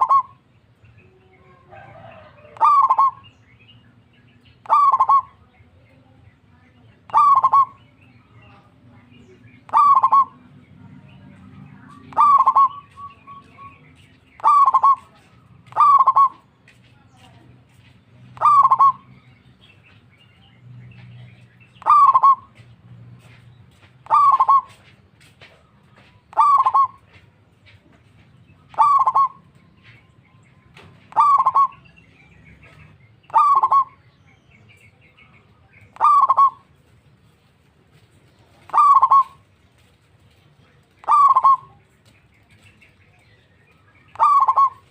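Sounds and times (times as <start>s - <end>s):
dove calling: 0.0s - 44.9s.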